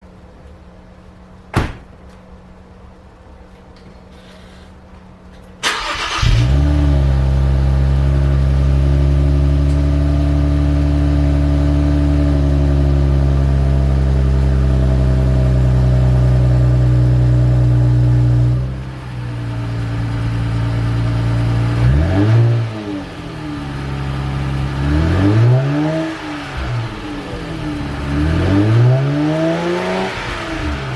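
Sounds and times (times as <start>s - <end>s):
car engine idling: 5.6s - 21.9s, 22.7s - 30.9s
engine throttle blips: 22.6s - 30.9s.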